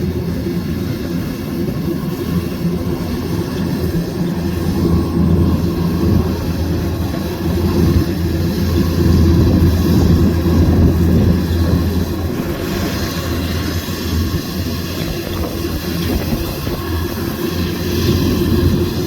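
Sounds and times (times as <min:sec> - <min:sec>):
combine harvester drone: 0:00.0 - 0:19.0.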